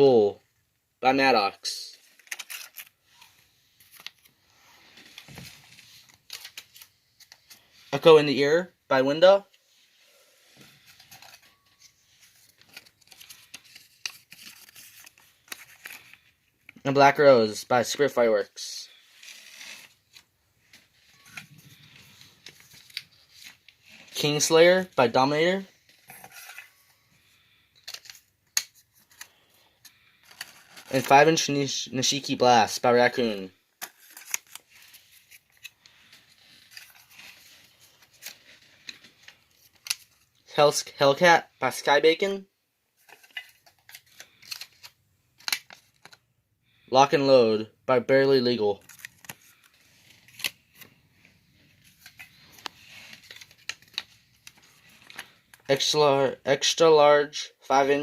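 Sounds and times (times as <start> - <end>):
paper rustling and crinkling: 2.0 - 7.9, 9.6 - 16.8, 18.9 - 24.2, 25.7 - 31.3, 33.8 - 40.4, 43.0 - 46.2, 48.8 - 55.7.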